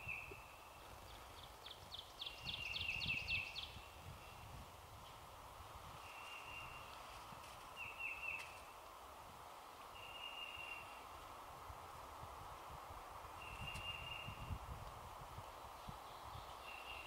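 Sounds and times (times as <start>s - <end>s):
woods background hiss: 0.0s - 17.0s
high bird calls: 6.0s - 6.9s.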